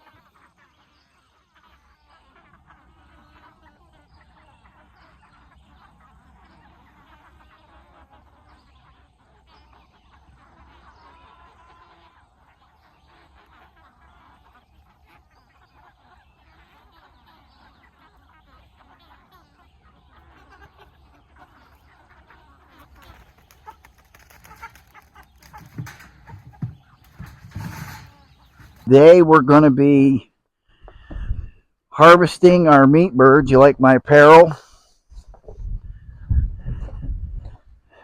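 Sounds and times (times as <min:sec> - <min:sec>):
chickens clucking: 0:00.0 - 0:30.2, 0:34.3 - 0:38.0
knocks: 0:24.1 - 0:28.9.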